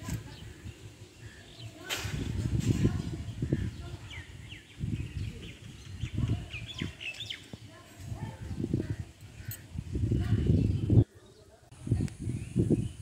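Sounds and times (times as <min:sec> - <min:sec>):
small birds chirping: 0:00.0 - 0:13.0
low rumbling on microphone: 0:08.1 - 0:11.1, 0:11.7 - 0:13.0.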